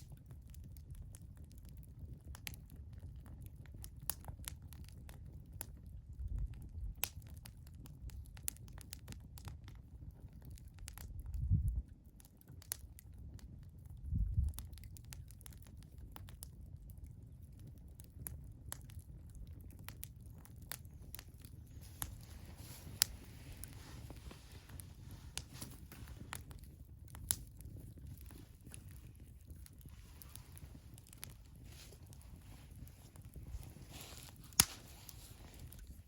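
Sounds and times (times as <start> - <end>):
wood fire crackling: 0.0 - 36.0
soft hiss: 21.7 - 26.4, 28.3 - 36.0.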